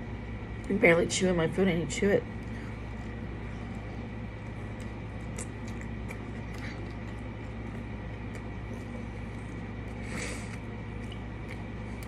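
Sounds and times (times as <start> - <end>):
steady low hum: 0.0 - 12.0
person chewing a burger: 2.4 - 12.0.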